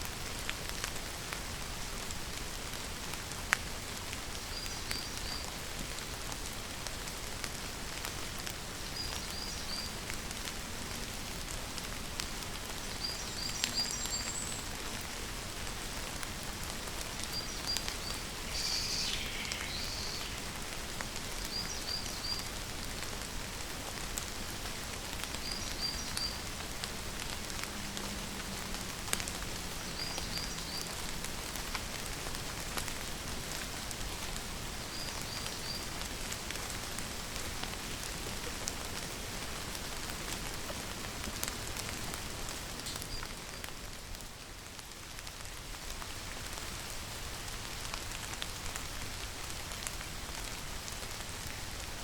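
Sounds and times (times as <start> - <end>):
steady rainfall: 0.0 - 52.0
longer falling bird call: 17.6 - 20.6.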